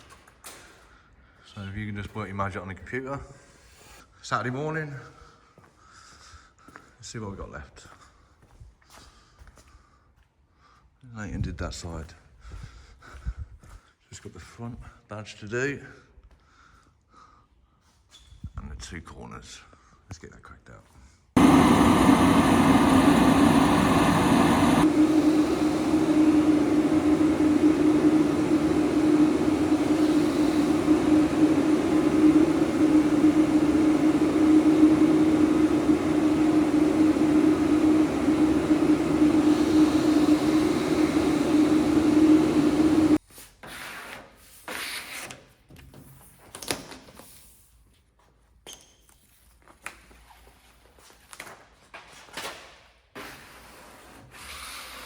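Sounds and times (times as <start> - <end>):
machine motor humming: 21.4 - 43.2.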